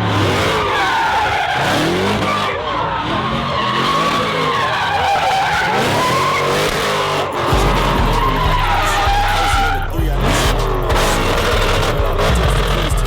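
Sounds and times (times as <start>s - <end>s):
engines revving: 0.0s - 13.0s
tyres squealing: 0.3s - 13.0s
deep low rumble: 7.6s - 13.0s.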